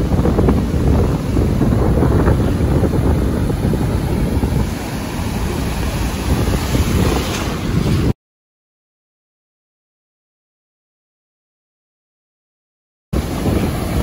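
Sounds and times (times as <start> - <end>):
ocean surf breaking: 0.0 - 8.2, 13.2 - 14.0
wind buffeting microphone: 0.0 - 8.2, 13.2 - 14.0.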